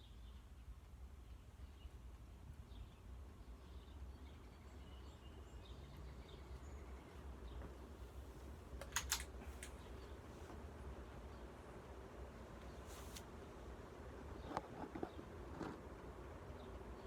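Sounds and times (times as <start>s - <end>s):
ceiling fan humming: 0.0s - 17.0s
sharp clicks: 8.8s - 9.8s.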